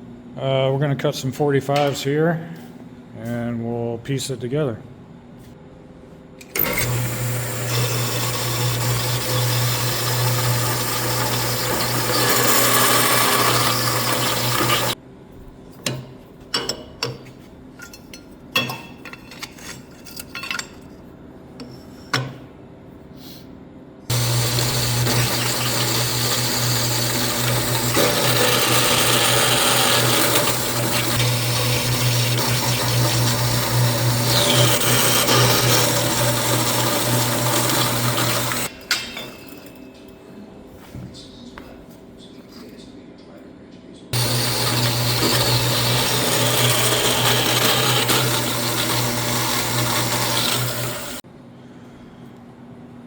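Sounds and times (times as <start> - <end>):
power saw cutting metal tube: 6.6 - 15.0, 24.1 - 38.7, 44.2 - 51.2.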